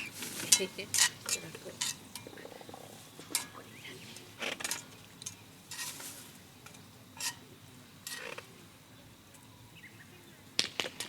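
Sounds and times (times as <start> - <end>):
utensils clinking on cookware: 0.4 - 2.3, 3.3 - 3.6, 7.2 - 7.4, 8.0 - 8.3.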